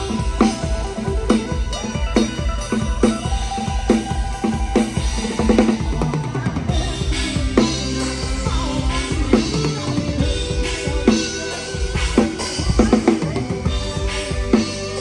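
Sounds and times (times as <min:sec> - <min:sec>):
drum kit beat: 0:00.0 - 0:15.0
live band playing: 0:00.0 - 0:15.0.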